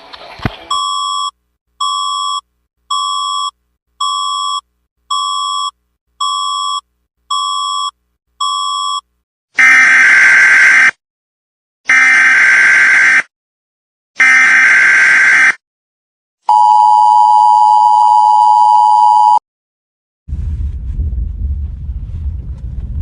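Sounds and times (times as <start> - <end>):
harsh buzzer blast: 9.6 - 10.9, 11.9 - 13.3, 14.2 - 15.6.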